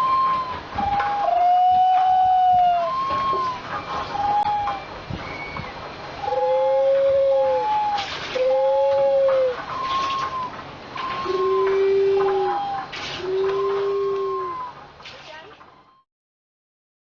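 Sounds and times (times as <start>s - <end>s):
whistled bird call notes: 0.0s - 14.9s.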